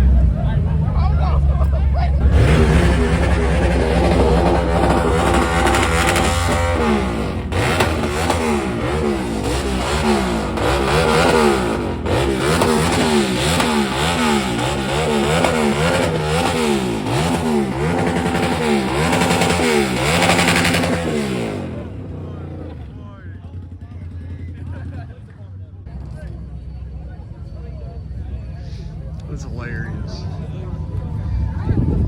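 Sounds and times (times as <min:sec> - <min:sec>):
truck engine revving: 0:00.0 - 0:25.1.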